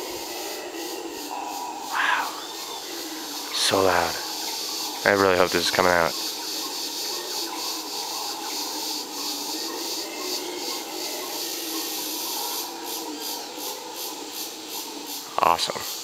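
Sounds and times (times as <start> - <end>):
high-pitched insects droning: 0.0 - 16.0
howler monkeys roaring: 0.0 - 16.0.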